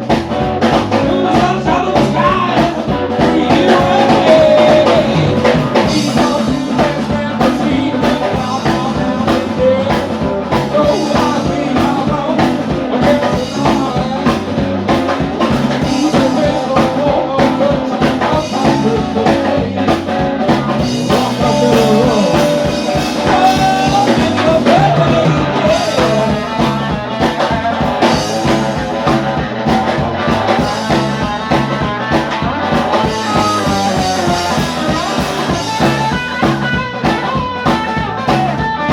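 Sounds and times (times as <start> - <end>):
blues-rock band playing: 0.0 - 38.9.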